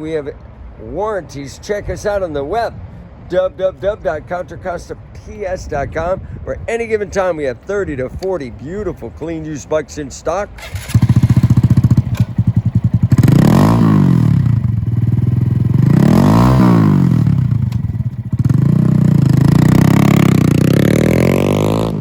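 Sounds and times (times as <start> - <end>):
motorcycle engine revving: 10.6 - 22.0.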